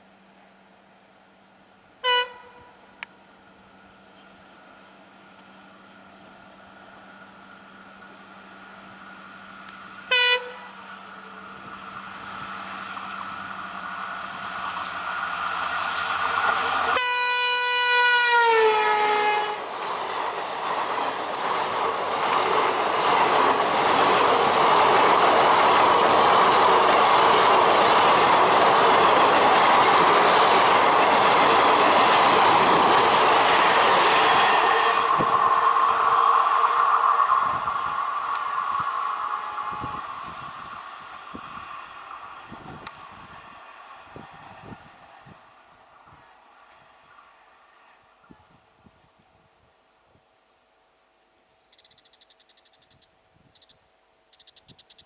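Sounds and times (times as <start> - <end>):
train horn: 2.0 - 3.0, 10.1 - 10.9, 16.8 - 19.7, 34.4 - 35.7, 38.7 - 40.4
locomotive humming: 2.0 - 47.8.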